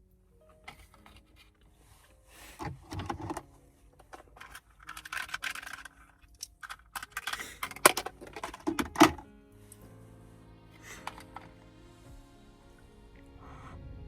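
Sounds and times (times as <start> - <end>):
small objects rustling and scraping: 0.5 - 9.9, 10.8 - 11.6.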